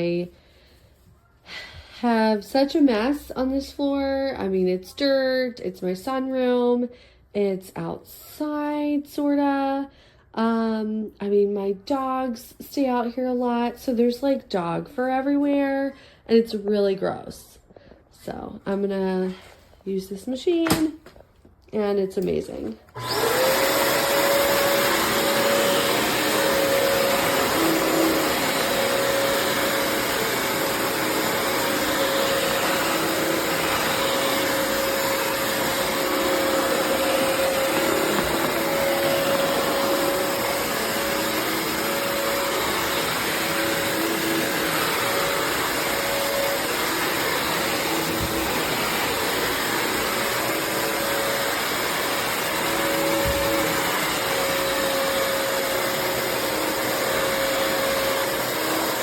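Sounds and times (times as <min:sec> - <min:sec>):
floor cleaner motor whine: 0:22.9 - 0:59.0
suction rush: 0:23.2 - 0:58.4.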